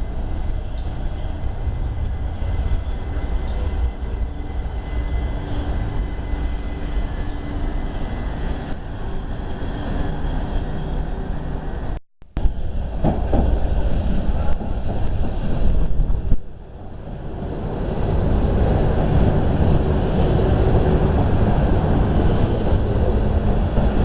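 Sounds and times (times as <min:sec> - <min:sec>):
passenger train rumbling past: 0:00.0 - 0:24.0
wind buffeting microphone: 0:12.4 - 0:24.0.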